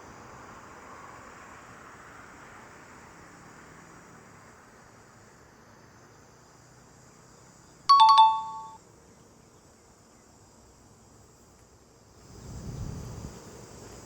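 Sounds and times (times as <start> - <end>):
bite alarm ringing chime: 7.9 - 8.8.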